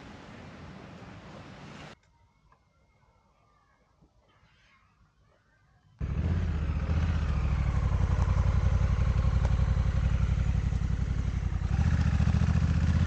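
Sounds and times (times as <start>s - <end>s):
motorcycle engine running: 6.0s - 13.0s.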